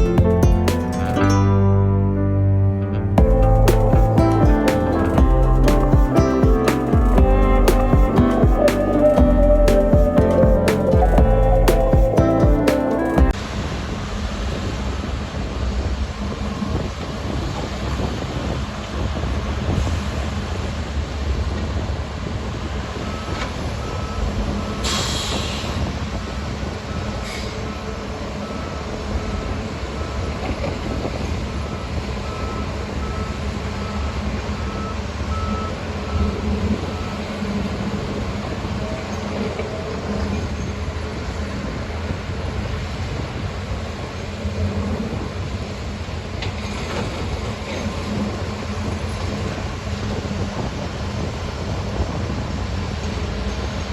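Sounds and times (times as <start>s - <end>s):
reversing alarm beeping: 31.6s - 37.4s.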